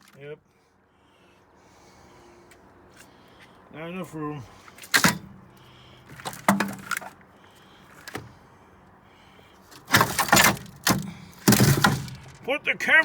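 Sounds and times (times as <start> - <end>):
metal parts and tools clattering: 9.8 - 12.5.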